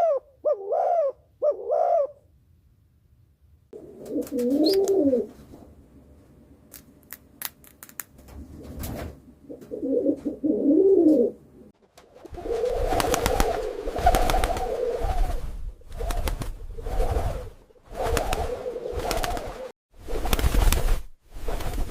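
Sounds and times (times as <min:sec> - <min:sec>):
pigeons cooing: 0:00.0 - 0:02.2, 0:03.8 - 0:05.3, 0:09.4 - 0:11.5.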